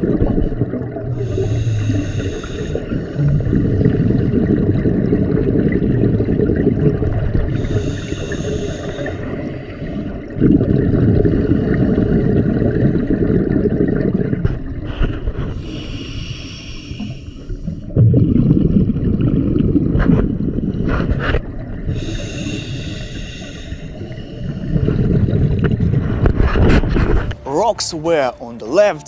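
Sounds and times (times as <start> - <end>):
exhaled bubbles rumbling: 0.0 - 28.6
diver breathing through regulator: 1.2 - 4.6, 7.4 - 10.3, 14.8 - 18.0, 20.7 - 25.5.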